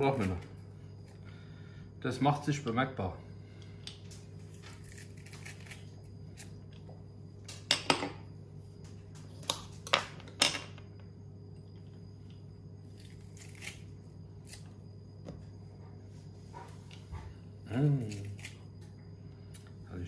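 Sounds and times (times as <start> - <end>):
garlic skin crackling and tearing: 4.6 - 6.6, 13.0 - 14.7.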